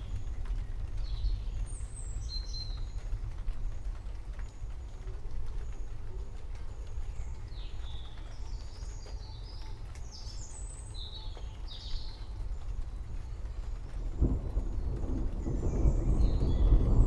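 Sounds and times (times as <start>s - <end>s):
steady low rumble: 12.8s - 17.0s
thunder rolling: 13.0s - 17.0s.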